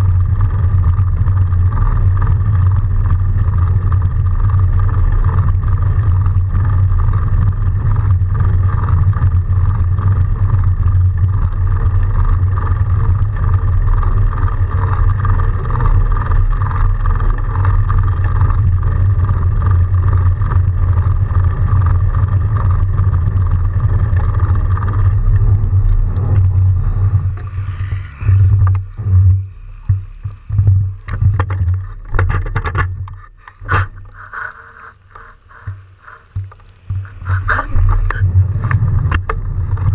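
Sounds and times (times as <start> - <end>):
bike tyres rumbling in snow: 0.0 - 39.9
mid-pitched hum: 0.0 - 39.9
knocks and scrapes: 24.8 - 39.9.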